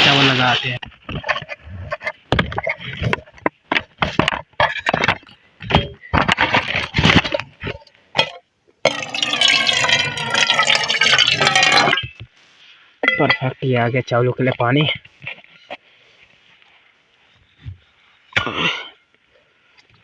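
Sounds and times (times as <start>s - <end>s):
knocks and rustles: 0.8s - 7.8s
water pouring into a pot: 8.9s - 12.0s.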